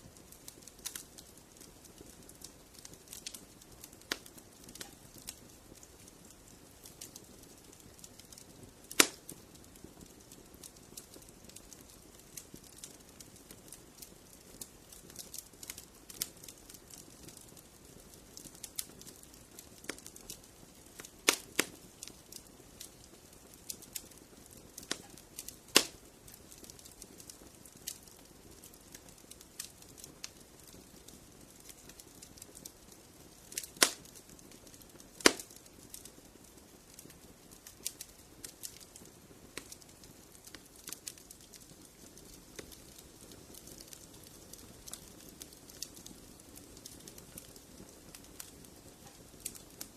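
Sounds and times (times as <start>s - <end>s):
fire crackling: 0.0s - 49.9s
sharp loud fire pops: 35.2s - 35.5s.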